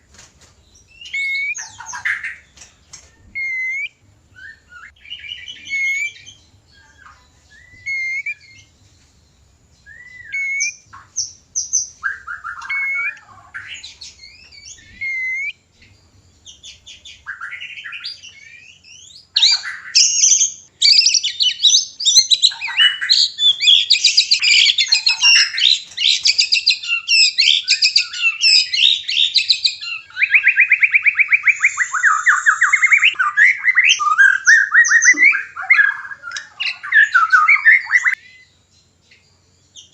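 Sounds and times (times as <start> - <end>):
bird whistled calls and song: 0.7 - 39.9
bird rapid trill: 16.4 - 38.5.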